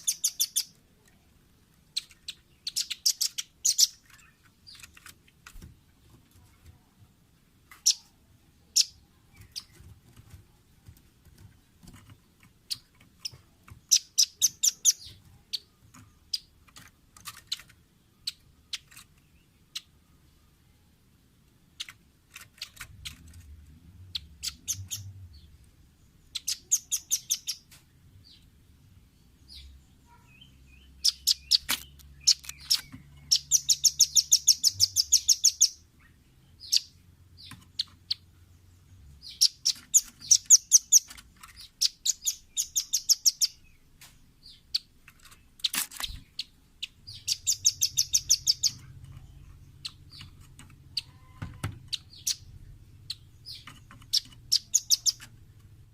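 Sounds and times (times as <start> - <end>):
bird trilling calls: 0.0 - 0.8, 2.0 - 4.8, 13.9 - 15.7, 26.3 - 27.7, 29.5 - 35.8, 36.6 - 38.2, 39.2 - 43.6, 46.0 - 49.0, 50.9 - 55.3.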